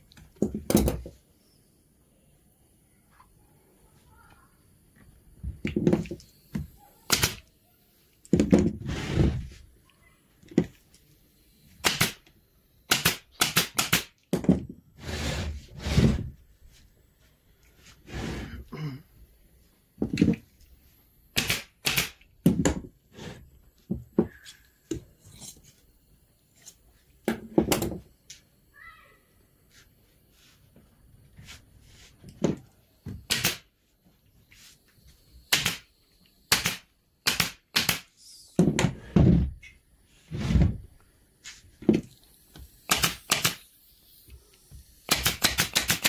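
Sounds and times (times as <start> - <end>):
knocks and thuds: 38.6 - 39.6.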